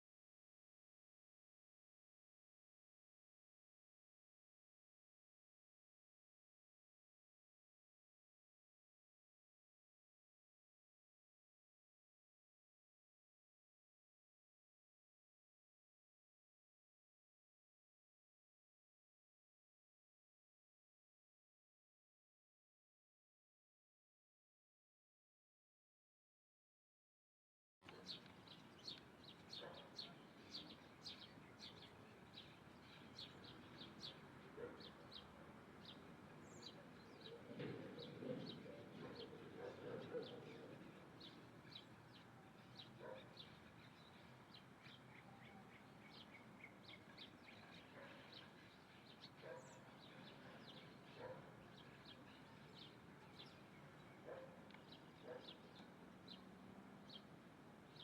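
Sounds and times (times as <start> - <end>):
small birds chirping: 27.9 - 58.0.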